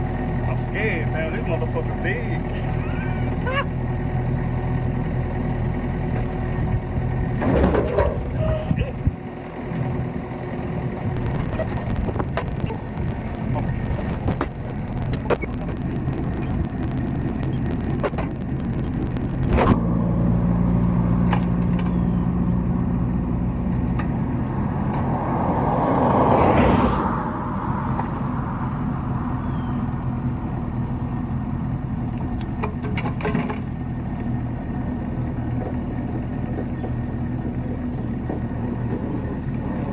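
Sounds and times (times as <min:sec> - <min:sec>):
mini excavator diesel engine: 0:00.0 - 0:39.9
rattles and clicks: 0:11.1 - 0:19.8.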